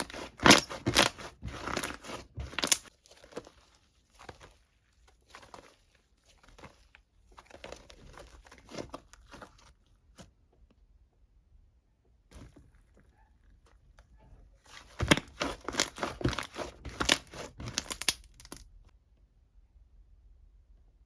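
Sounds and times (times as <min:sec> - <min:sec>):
crinkling and crackling handling noise: 0:00.0 - 0:10.3, 0:12.3 - 0:18.7.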